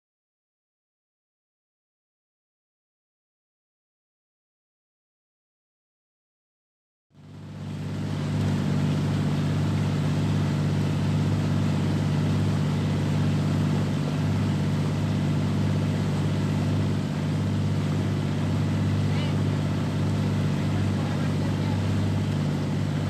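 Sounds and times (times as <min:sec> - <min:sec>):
small boat motor running: 0:07.2 - 0:23.0.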